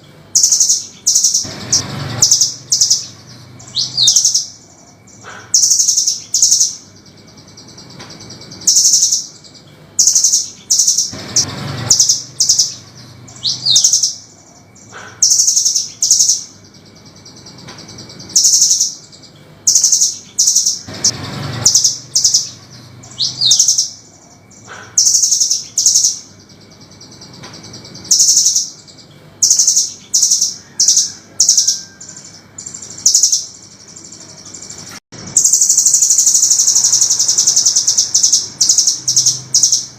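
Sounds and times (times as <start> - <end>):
bird giving harsh high calls: 0.4 - 6.8.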